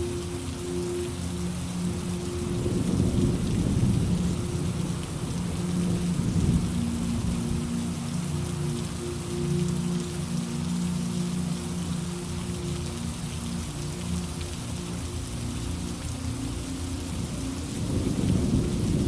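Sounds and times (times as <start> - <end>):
steady rain falling: 0.0 - 19.0
rolling thunder rumble: 2.6 - 7.7, 17.7 - 19.0.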